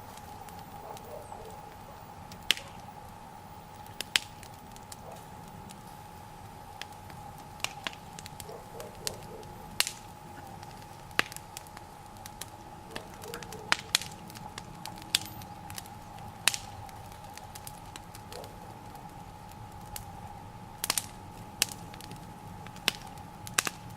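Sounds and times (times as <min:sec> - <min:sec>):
sharp pops from fire: 0:00.0 - 0:23.9
wood fire crackling: 0:00.0 - 0:23.9.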